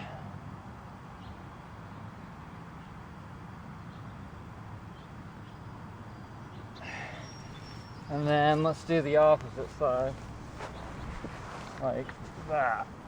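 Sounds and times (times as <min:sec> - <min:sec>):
faint bird chirps: 0:04.9 - 0:12.2
high bird call: 0:06.8 - 0:12.8.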